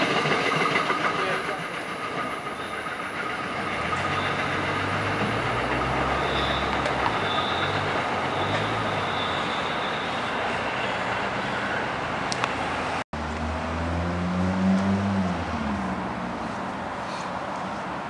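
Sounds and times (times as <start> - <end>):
train running gear rumbling: 0.0 - 13.0.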